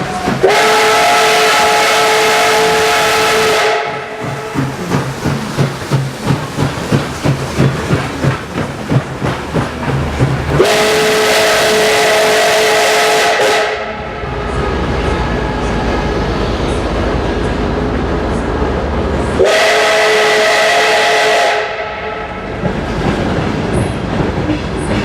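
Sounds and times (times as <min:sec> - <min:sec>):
rumble and hiss of train: 0:00.0 - 0:25.0
steam locomotive chuffing: 0:00.0 - 0:25.0
steam whistle: 0:00.2 - 0:04.2, 0:10.6 - 0:16.1, 0:19.4 - 0:22.4.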